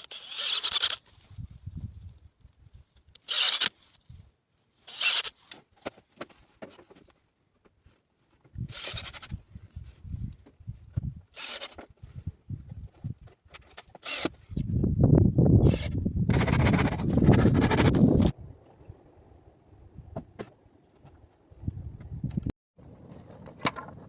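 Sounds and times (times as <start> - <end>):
rasping scrapes: 15.6 - 18.3.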